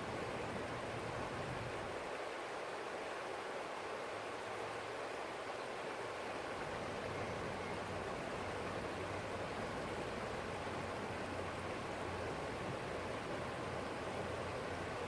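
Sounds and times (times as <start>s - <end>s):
forest stream flowing: 0.0s - 15.0s.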